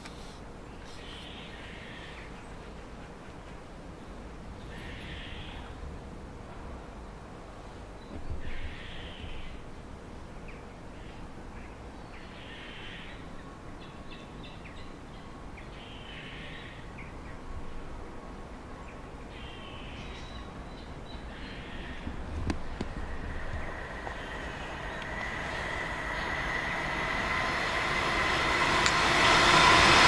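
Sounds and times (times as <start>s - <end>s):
outdoor background noise: 0.0s - 30.0s
bird calling: 21.4s - 29.1s.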